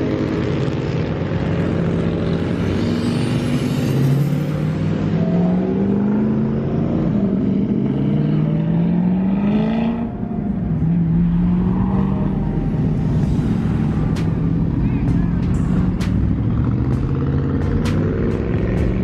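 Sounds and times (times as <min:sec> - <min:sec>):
vehicle engine pulling away: 0:00.0 - 0:19.0.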